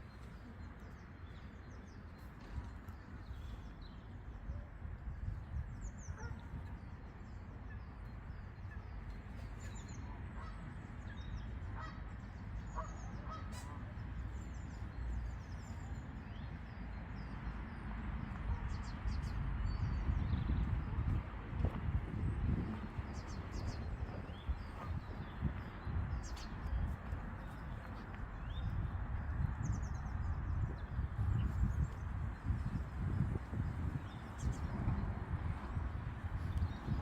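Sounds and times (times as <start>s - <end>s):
steady low rumble: 18.2s - 37.0s.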